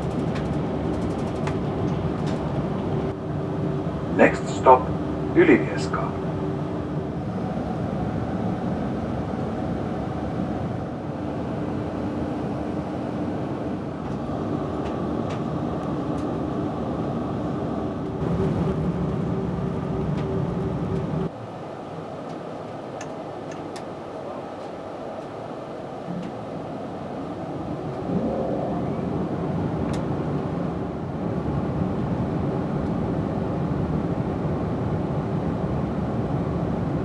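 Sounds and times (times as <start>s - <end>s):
train rumble inside carriage: 0.0s - 37.0s
faint hum: 2.8s - 37.0s.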